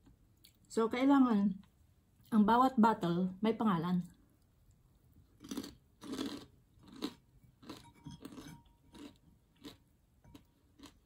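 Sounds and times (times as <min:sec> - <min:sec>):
person chewing crispy food: 0:04.7 - 0:11.0.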